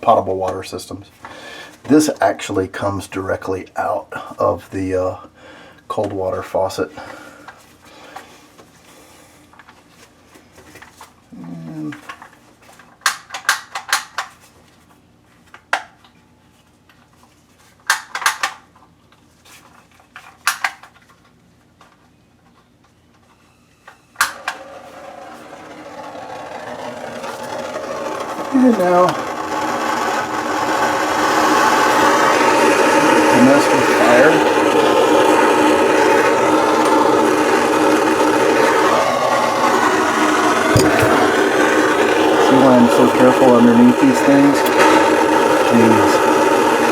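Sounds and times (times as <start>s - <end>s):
gas flame hissing: 27.4s - 46.9s
torch ignition click: 39.6s - 46.9s.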